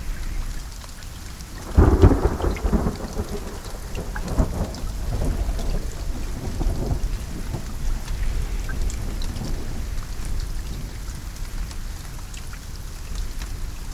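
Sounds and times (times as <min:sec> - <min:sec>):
steady rain: 0:00.0 - 0:13.9
water drips: 0:00.0 - 0:13.9
thunder rumbling: 0:01.5 - 0:11.0.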